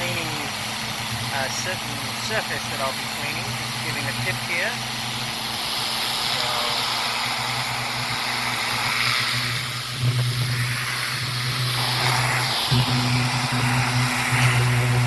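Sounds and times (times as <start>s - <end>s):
pressure washer motor hum: 0.0s - 15.0s
water jet hissing on concrete: 0.0s - 15.0s.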